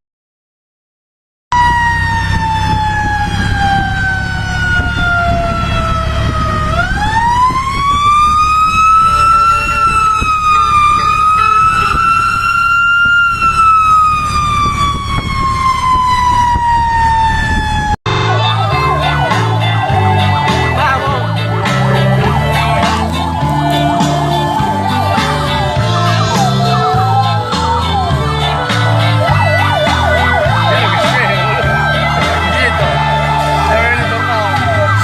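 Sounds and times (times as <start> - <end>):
fire engine siren wailing: 1.5 - 35.0.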